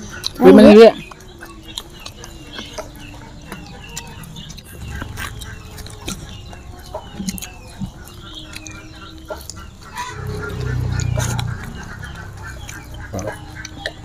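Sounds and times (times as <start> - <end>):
animal calls: 0.0 - 14.0
chewing with mouth smacks: 0.0 - 14.0.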